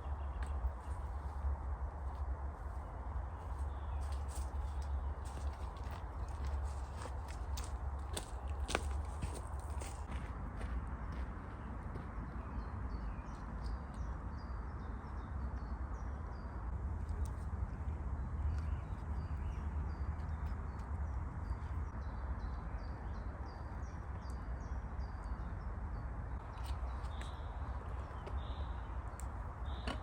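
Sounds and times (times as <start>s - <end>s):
small birds chirping: 26.4s - 30.0s.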